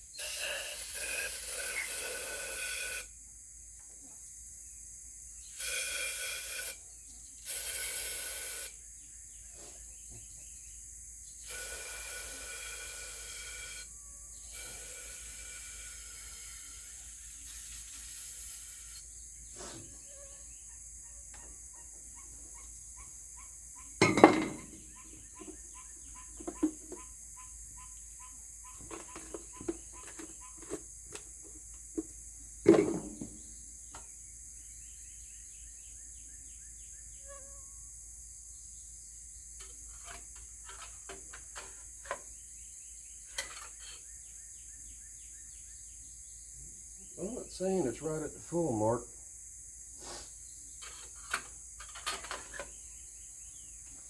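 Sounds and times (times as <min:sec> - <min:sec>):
insects chirring: 0:00.0 - 0:54.0
clinks and knocks of handwork: 0:24.0 - 0:24.8.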